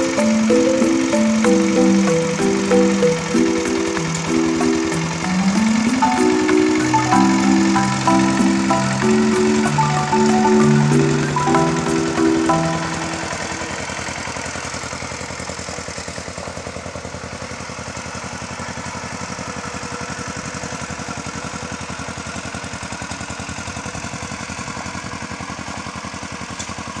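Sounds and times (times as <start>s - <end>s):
mallet percussion notes: 0.0s - 14.1s.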